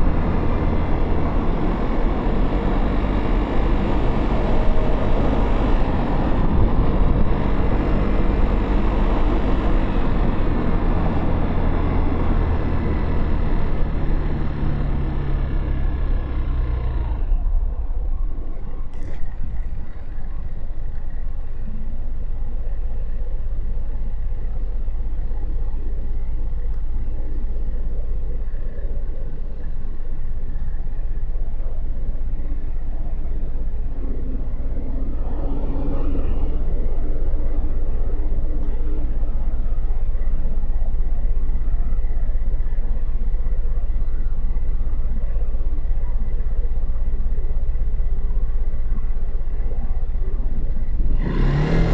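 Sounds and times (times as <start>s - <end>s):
wind noise on microphone: 0.0s - 13.1s
motorcycle engine rumble: 0.0s - 51.9s.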